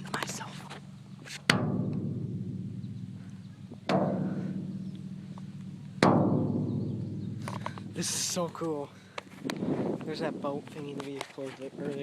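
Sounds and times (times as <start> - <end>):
metal drum struck ringing: 1.5 - 9.0.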